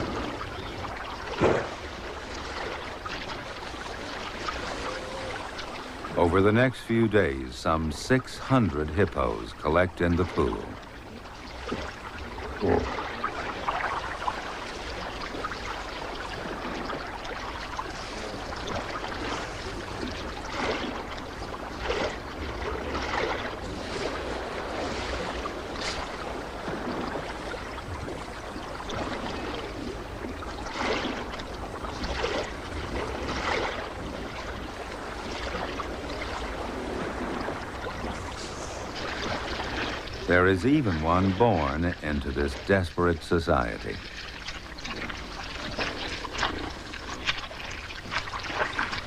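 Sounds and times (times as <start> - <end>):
loud splashes: 0.0 - 6.2
water sloshing: 0.0 - 49.0.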